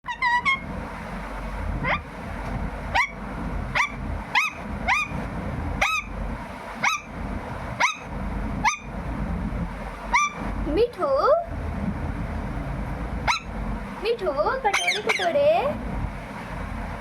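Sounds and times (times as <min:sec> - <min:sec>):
parrot calling: 0:00.0 - 0:00.7, 0:01.8 - 0:02.2, 0:02.9 - 0:05.2, 0:05.8 - 0:06.2, 0:06.8 - 0:09.0, 0:10.0 - 0:10.4, 0:13.2 - 0:13.6, 0:14.6 - 0:15.6.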